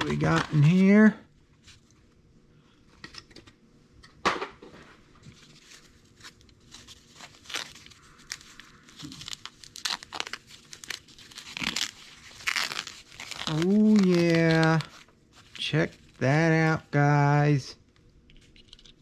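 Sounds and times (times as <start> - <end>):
packing material tearing and crinkling: 0.0 - 1.0, 5.4 - 16.2.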